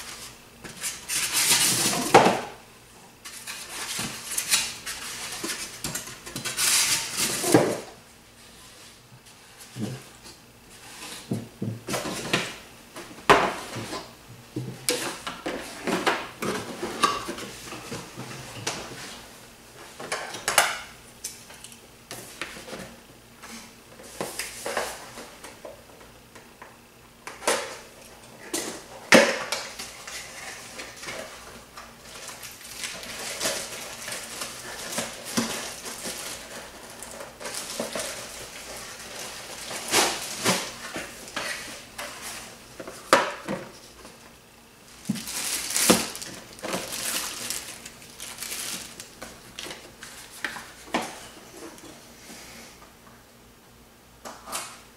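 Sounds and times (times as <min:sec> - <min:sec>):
packaging rustling: 0:30.1 - 0:43.1, 0:44.8 - 0:50.8.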